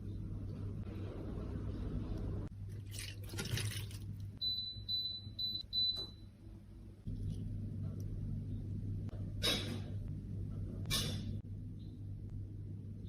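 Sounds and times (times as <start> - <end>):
steady low hum: 0.0 - 3.2, 3.8 - 13.0.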